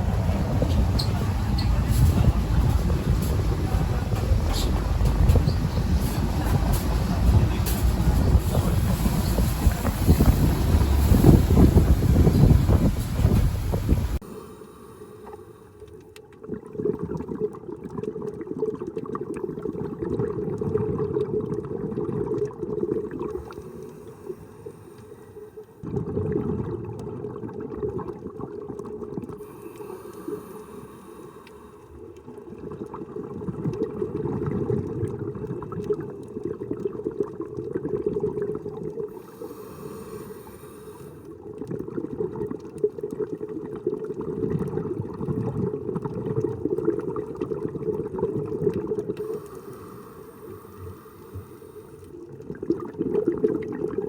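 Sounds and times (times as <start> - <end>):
exhaled bubbles underwater: 0.0 - 54.0
hissing regulator inhalation: 0.8 - 15.9, 29.4 - 32.0, 39.1 - 41.3, 49.2 - 52.1.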